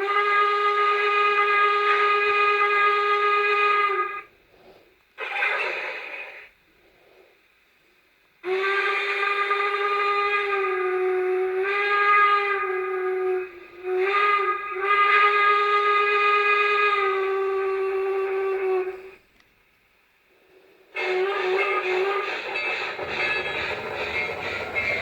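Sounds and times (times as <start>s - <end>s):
steam whistle blast: 0.0s - 4.3s, 8.4s - 19.2s, 21.0s - 25.0s
steam hiss: 20.4s - 25.0s.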